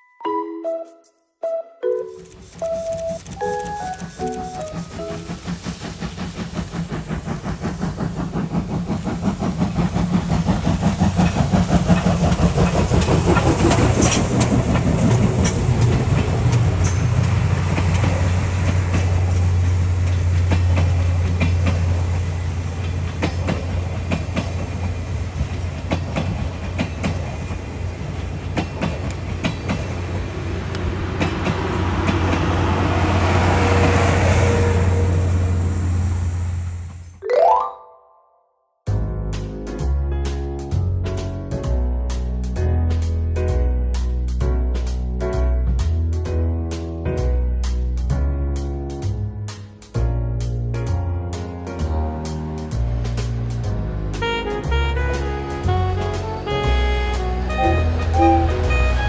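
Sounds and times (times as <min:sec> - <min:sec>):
train low drone: 0:02.2 - 0:37.2, 0:40.8 - 0:59.0
train clattering over rail joints: 0:02.3 - 0:37.1, 0:50.4 - 0:59.0.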